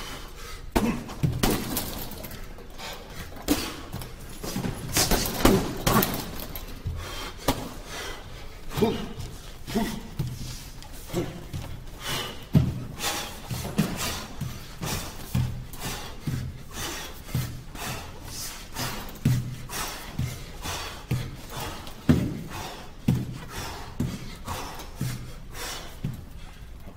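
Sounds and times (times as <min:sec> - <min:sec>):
kicks and punches thudding: 0:00.7 - 0:02.1, 0:04.5 - 0:06.4.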